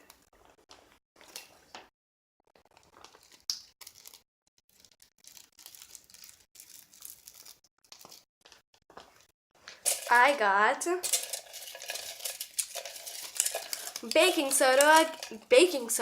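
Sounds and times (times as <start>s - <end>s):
faint rustling and crinkling: 11.0s - 15.9s.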